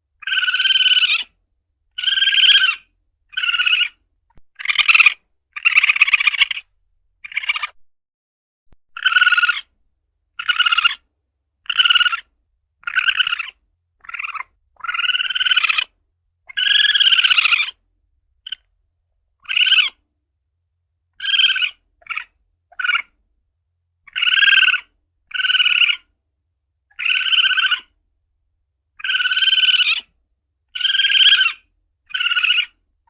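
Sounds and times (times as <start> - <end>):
civet calling: 0.2 - 7.8, 8.9 - 9.7, 10.4 - 11.0, 11.6 - 17.8, 18.4 - 18.7, 19.4 - 20.0, 21.1 - 23.2, 24.1 - 26.1, 26.9 - 28.0, 29.0 - 30.1, 30.7 - 32.8.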